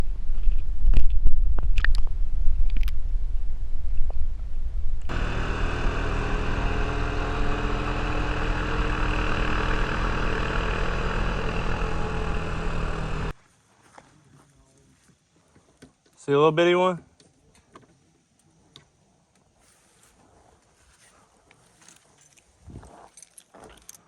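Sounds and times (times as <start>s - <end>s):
motor humming: 5.1s - 13.4s.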